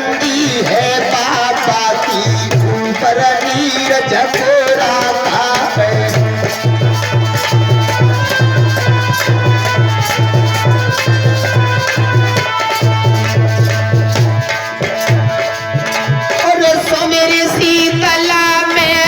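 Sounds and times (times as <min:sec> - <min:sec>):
hand drum rhythm: 0:00.0 - 0:19.0
held melody notes: 0:04.7 - 0:18.0.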